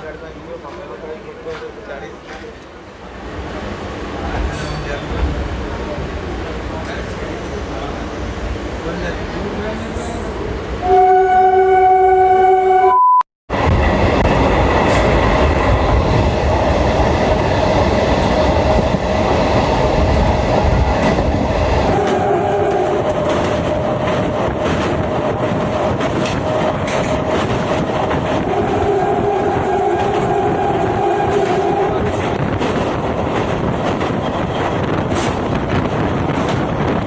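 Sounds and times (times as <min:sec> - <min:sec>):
train running on rails: 0:00.0 - 0:12.8, 0:13.5 - 0:37.0
train horn: 0:10.8 - 0:13.0, 0:21.9 - 0:23.1, 0:28.4 - 0:32.2.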